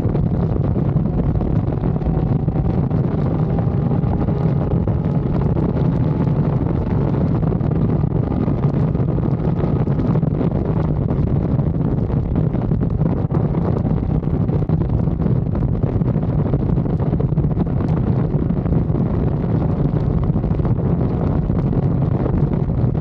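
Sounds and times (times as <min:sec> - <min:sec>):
motorcycle engine running: 0:00.0 - 0:23.0
wind rushing over microphone: 0:00.0 - 0:23.0.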